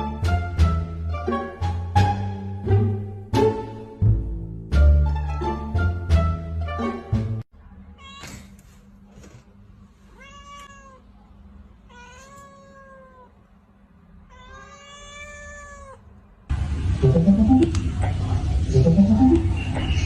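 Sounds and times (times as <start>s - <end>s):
cat meowing: 7.9s - 8.5s, 10.1s - 11.2s, 11.8s - 13.4s, 14.2s - 16.1s
loud music: 16.8s - 18.0s, 18.6s - 19.7s.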